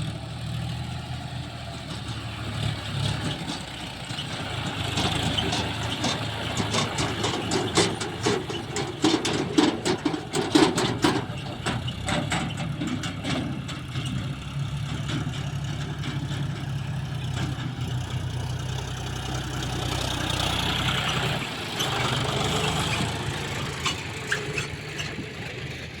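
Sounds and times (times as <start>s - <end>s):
tractor diesel engine running: 0.0s - 26.0s
rapid clicks and knocks: 4.9s - 13.9s.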